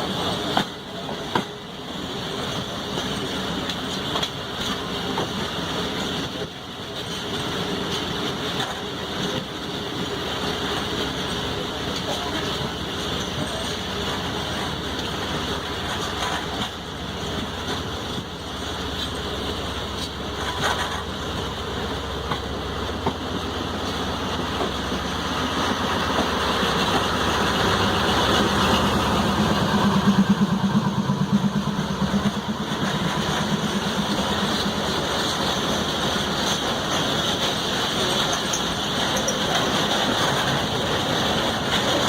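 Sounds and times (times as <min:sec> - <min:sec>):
train rail and wheel noise: 0:00.0 - 0:42.0
diesel locomotive engine throb: 0:09.8 - 0:38.4.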